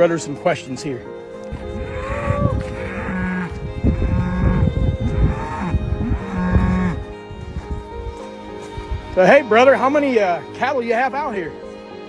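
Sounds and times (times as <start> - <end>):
drawn-out moos: 1.2 - 9.7.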